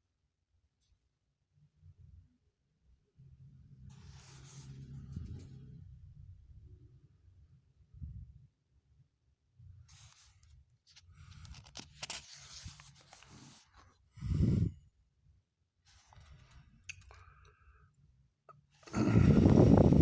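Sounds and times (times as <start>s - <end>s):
rustling and scraping handling noises: 3.9s - 5.6s, 9.9s - 14.0s, 15.9s - 17.1s.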